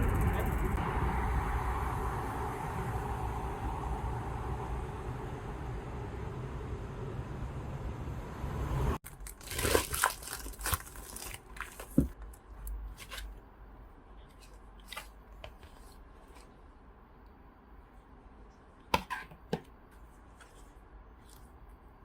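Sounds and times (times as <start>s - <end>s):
steady rumbling noise: 0.0s - 9.0s
crinkling and tearing handling sounds: 9.0s - 13.3s.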